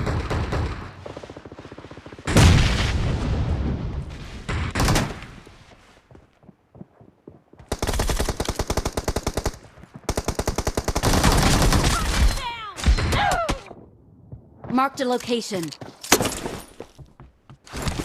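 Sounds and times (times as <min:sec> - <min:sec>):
rapid automatic gunfire: 0:07.7 - 0:12.0.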